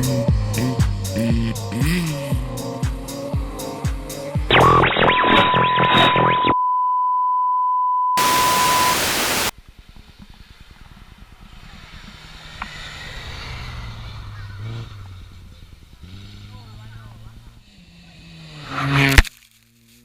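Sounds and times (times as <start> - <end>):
steady electronic beep: 4.5 - 9.5
static hiss burst: 8.2 - 9.5
faint crackle: 19.0 - 20.0.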